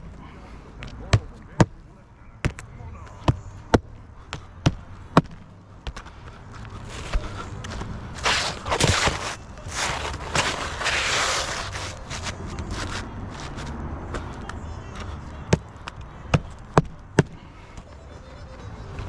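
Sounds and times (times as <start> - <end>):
scraping and rustling: 6.7 - 13.8.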